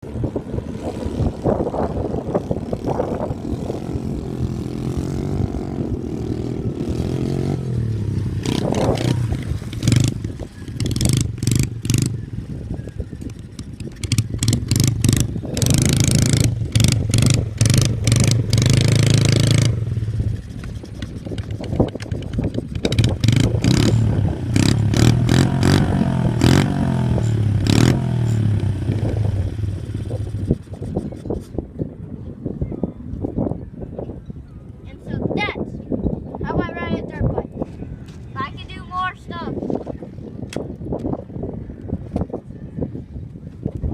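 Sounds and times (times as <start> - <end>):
dirt bike engine revving: 0.0 - 12.8, 13.4 - 31.4.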